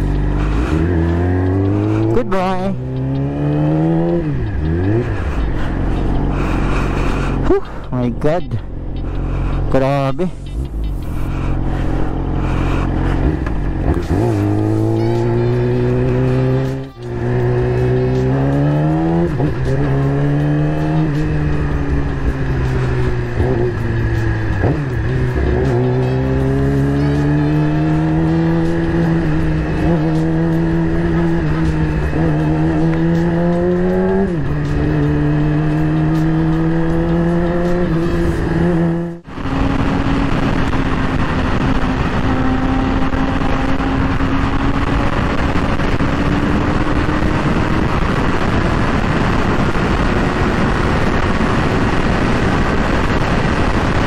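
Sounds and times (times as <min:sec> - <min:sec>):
motorcycle engine revving and shifting: 0:00.0 - 0:54.0
wind rush: 0:37.3 - 0:54.0.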